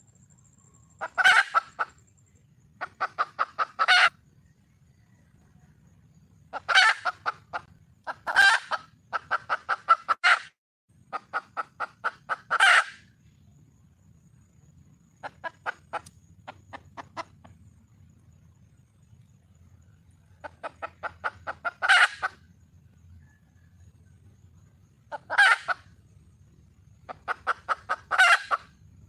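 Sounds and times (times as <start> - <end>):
hen clucking: 1.0 - 2.0, 2.8 - 4.2, 6.5 - 13.1, 15.2 - 17.6, 20.4 - 22.5, 25.1 - 25.9, 27.0 - 28.8.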